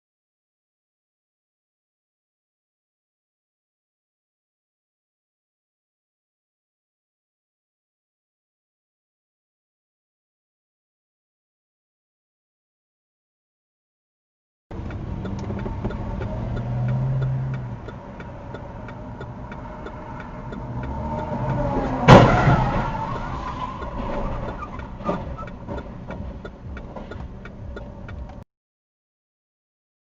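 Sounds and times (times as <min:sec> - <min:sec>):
faint regular ticking: 0:14.7 - 0:21.8, 0:23.8 - 0:28.4
car engine and road noise: 0:14.7 - 0:28.5
car crash impact: 0:21.2 - 0:26.0.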